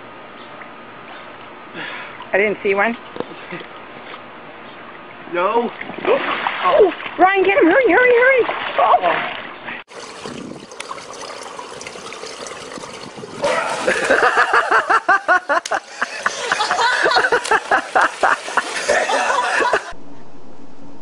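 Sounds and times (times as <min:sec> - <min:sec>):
water splashing: 0:05.0 - 0:20.0.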